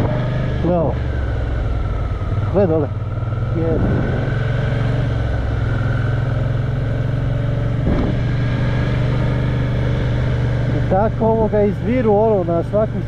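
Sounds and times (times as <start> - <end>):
motorcycle engine running: 0.0 - 13.0
road and wind noise: 0.0 - 13.0.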